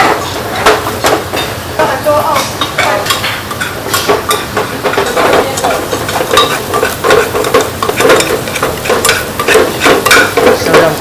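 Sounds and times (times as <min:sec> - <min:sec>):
food sizzling: 0:00.0 - 0:11.0
metal utensil scraping pan: 0:02.6 - 0:11.0.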